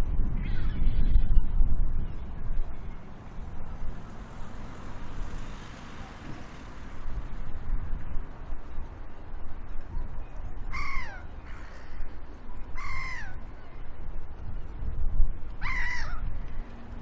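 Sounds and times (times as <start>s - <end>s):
low steady rumble: 0.0s - 17.0s
large bird crying: 0.4s - 1.2s, 10.7s - 12.0s, 12.8s - 13.4s, 15.6s - 16.3s.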